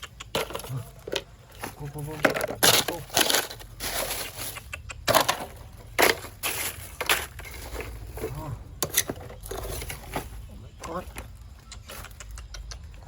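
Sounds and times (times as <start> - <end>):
footsteps through wet ground cover: 5.8 - 8.7.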